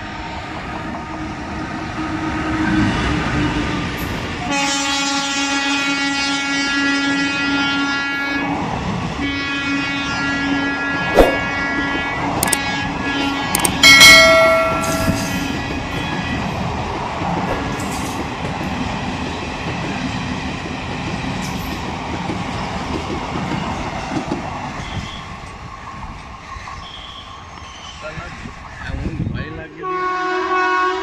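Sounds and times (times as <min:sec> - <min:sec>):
train rumbling and clattering past: 0:00.0 - 0:06.1, 0:10.2 - 0:31.0
loud train horn: 0:04.4 - 0:13.6, 0:14.2 - 0:15.8, 0:29.8 - 0:31.0.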